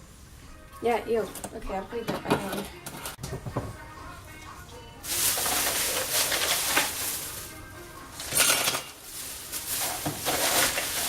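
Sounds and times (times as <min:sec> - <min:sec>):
crushed ice clattering: 0:05.0 - 0:11.0.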